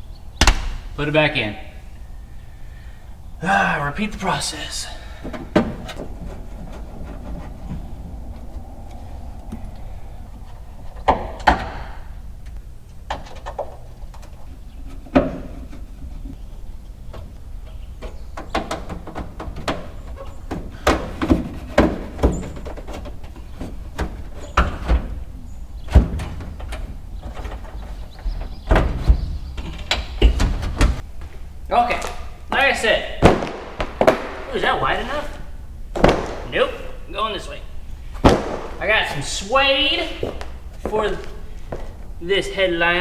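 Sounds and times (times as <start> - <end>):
knocks and clunks in truck cab: 0.4 - 1.0, 5.2 - 8.8, 17.1 - 31.0, 35.9 - 36.6, 38.2 - 38.9.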